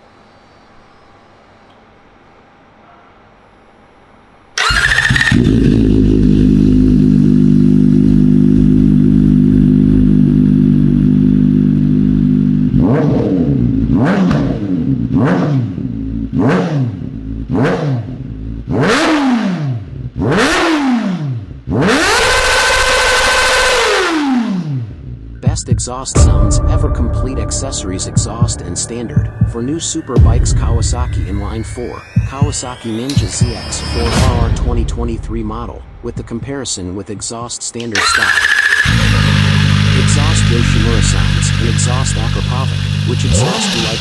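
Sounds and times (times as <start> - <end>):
motorcycle engine starting and idling: 4.6 - 12.7, 37.8 - 44.0
motorcycle engine revving: 4.6 - 25.4, 37.9 - 44.0.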